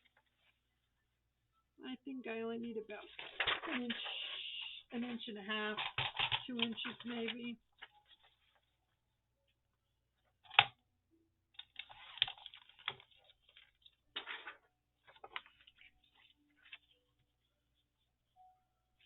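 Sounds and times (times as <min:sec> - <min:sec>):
paper rustling: 0:03.0 - 0:04.7, 0:11.6 - 0:18.1.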